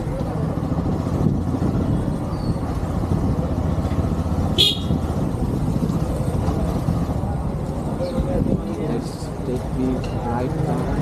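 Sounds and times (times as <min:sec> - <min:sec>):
wind noise: 0:00.0 - 0:07.1
motorcycle engine rumble: 0:00.0 - 0:11.0.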